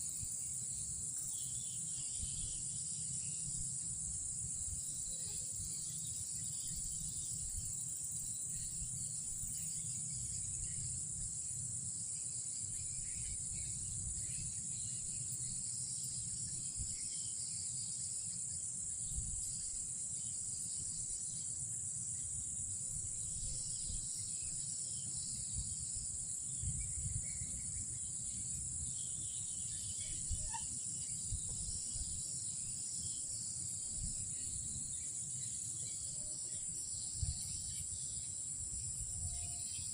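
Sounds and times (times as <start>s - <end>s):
faint insect chirps: 0.0s - 39.9s
night insects trilling: 0.0s - 39.9s.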